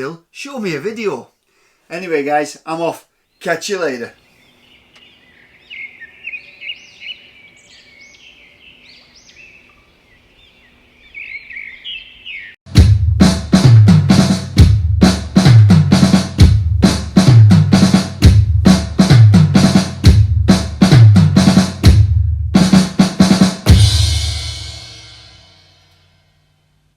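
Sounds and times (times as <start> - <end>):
drum kit beat: 12.7 - 25.6
cymbal crash: 23.7 - 26.4.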